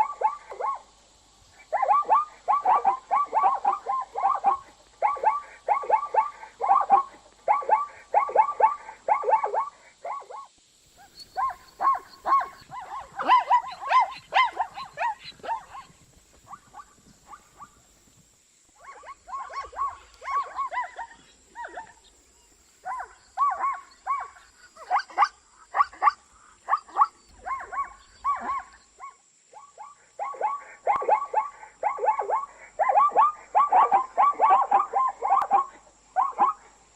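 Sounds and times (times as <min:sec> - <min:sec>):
zebra barking call: 0:01.6 - 0:09.7, 0:11.0 - 0:17.8, 0:18.8 - 0:22.1.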